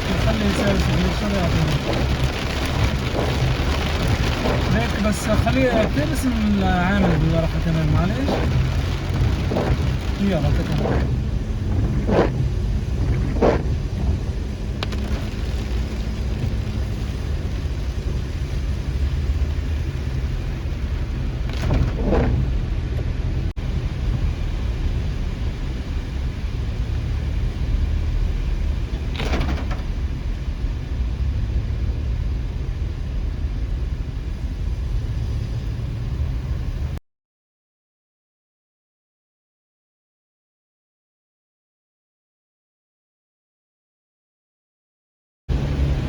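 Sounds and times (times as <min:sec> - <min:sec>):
car driving rumble: 0:00.0 - 0:37.0, 0:45.5 - 0:46.0
short swishes: 0:08.2 - 0:13.8, 0:21.5 - 0:22.6.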